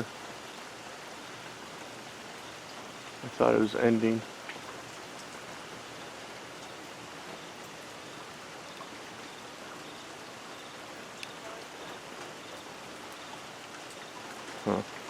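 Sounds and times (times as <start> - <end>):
heavy rain falling: 0.0 - 15.0
sharp water drip: 4.1 - 15.0.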